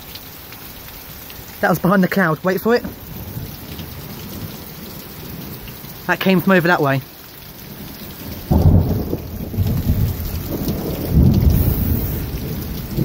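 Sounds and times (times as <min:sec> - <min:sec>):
steady rain hissing: 0:00.0 - 0:13.0
thunder rumble: 0:07.7 - 0:13.0.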